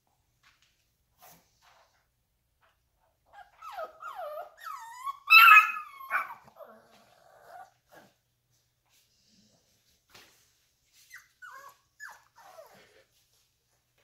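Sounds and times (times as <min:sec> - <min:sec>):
puppies whining and yelping: 0:03.3 - 0:08.2, 0:11.0 - 0:13.1.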